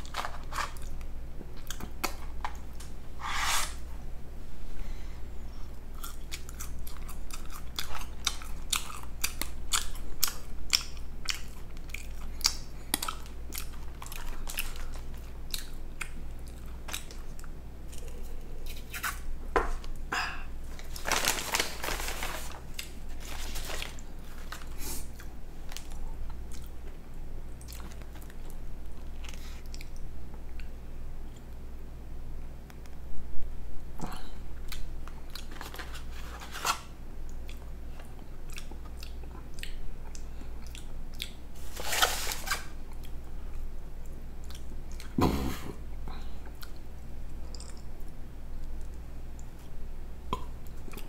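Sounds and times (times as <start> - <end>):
steady low hum: 0.0 - 51.0
close chewing with wet clicks: 6.0 - 18.2, 37.3 - 41.4, 44.0 - 45.2, 46.6 - 49.8.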